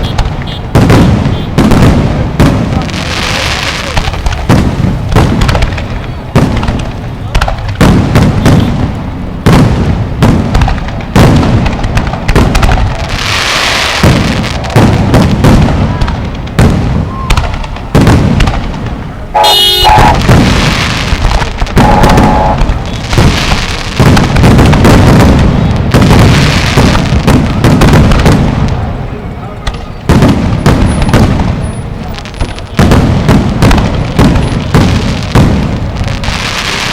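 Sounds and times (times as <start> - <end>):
fireworks booming and crackling: 0.0 - 36.9
firework whistles: 17.0 - 18.0, 19.4 - 23.9.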